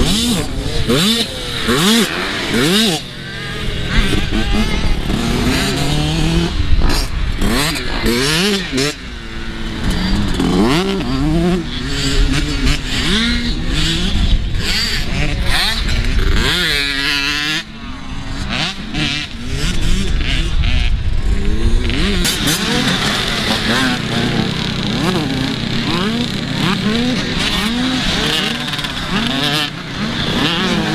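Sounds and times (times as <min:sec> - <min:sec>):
dirt bike engines revving: 0:00.0 - 0:30.9.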